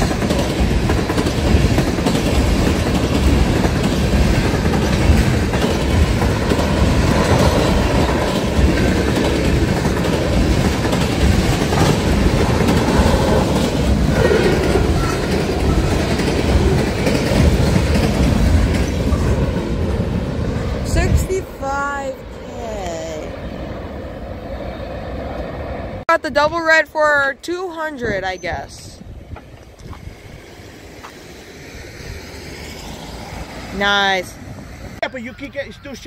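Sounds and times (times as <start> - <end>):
wheels clacking over rail joints: 0.0 - 21.2
freight train cars rolling: 0.0 - 36.0.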